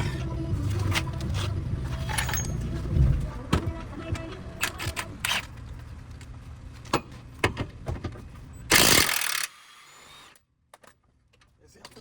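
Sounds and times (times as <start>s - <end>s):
low rumble: 0.0s - 4.6s.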